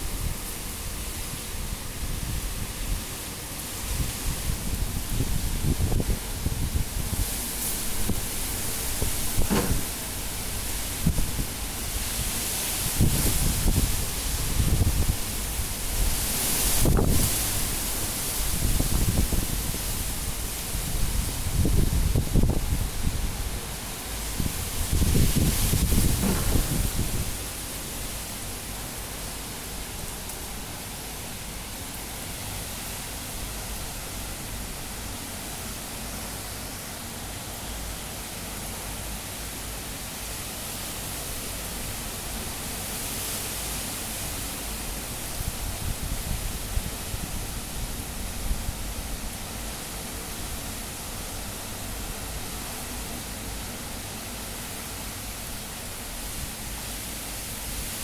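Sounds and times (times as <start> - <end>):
wind gusts on microphone: 0.0 - 35.7, 39.5 - 58.0
strong wind blowing: 3.8 - 28.8.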